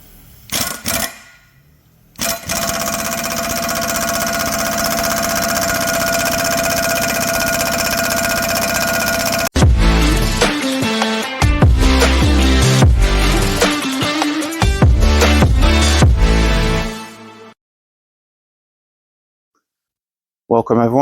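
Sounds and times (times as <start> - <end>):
mechanical rattle with whine: 2.2 - 9.6.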